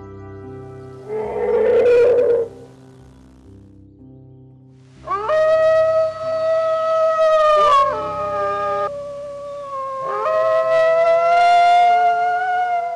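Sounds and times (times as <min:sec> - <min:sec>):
wolves howling: 0:01.0 - 0:02.7, 0:05.0 - 0:12.9.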